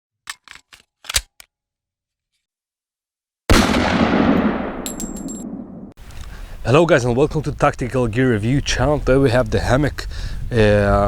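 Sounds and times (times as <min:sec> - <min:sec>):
loud gunshot-like blast: 0:03.5 - 0:05.9.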